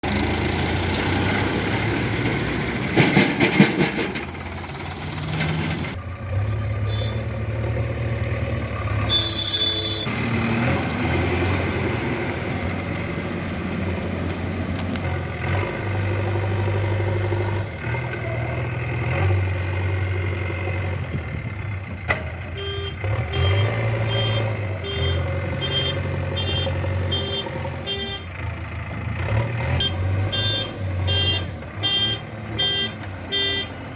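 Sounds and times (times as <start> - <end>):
heavy vehicle engine running: 0.0 - 33.9
short clatter: 2.3 - 6.0
reversing alarm beeping: 9.1 - 10.1, 22.6 - 28.3.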